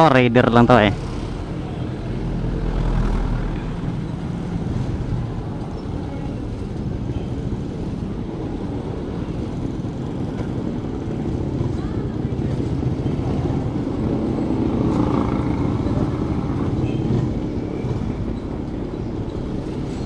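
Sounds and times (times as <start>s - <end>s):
motorcycle engine running: 0.9s - 5.4s.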